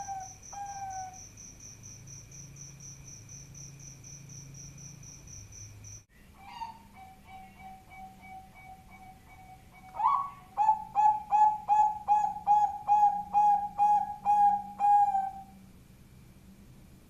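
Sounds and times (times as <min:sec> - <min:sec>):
dove cooing: 0:00.0 - 0:01.2, 0:06.4 - 0:15.6.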